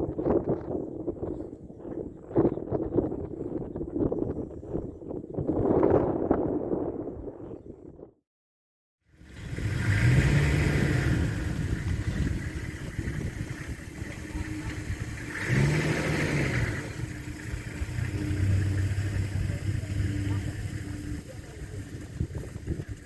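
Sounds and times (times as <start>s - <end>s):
vehicle engine revving: 9.2s - 23.0s.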